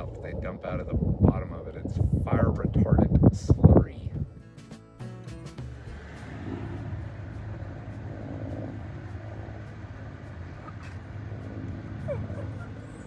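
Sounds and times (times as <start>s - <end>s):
aircraft engine drone overhead: 5.8s - 13.0s.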